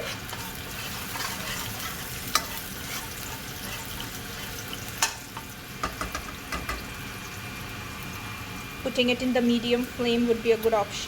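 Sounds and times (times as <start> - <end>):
oil sizzling in a pan: 0.0 - 11.0
spatula tapping a pan: 2.3 - 2.6, 5.0 - 6.9.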